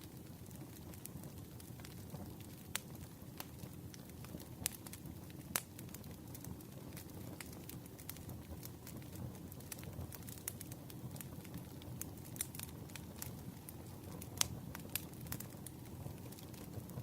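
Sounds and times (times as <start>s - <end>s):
low rumble of flames: 0.0s - 17.0s
burning wood popping and snapping: 0.2s - 17.0s.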